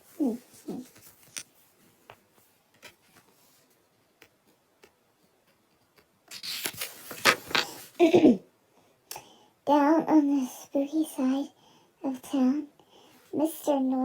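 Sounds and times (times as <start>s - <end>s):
objects rustling and crackling: 0.0s - 3.9s, 6.3s - 8.2s
faint clicks and taps: 0.9s - 7.8s.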